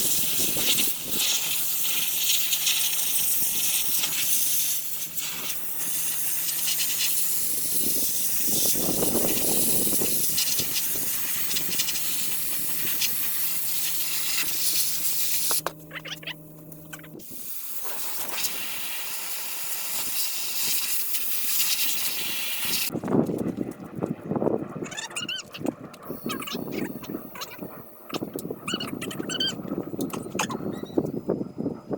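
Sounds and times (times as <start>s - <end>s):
sandblaster hissing: 0.0s - 16.3s, 17.0s - 23.0s.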